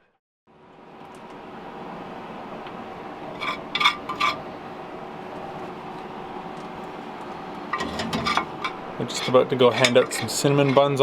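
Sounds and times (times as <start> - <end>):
background hum: 0.5 - 11.0
dishes clinking: 7.7 - 11.0.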